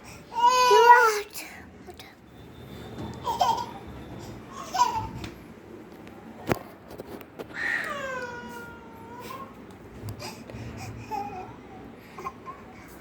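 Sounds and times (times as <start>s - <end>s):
baby whining cry: 4.5s - 5.2s, 10.2s - 12.8s.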